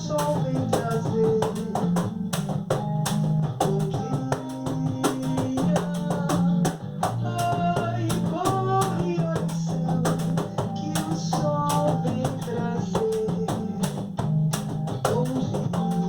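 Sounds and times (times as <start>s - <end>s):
cajon struck in rhythm: 0.0s - 16.0s
recorded samba song: 0.0s - 16.0s.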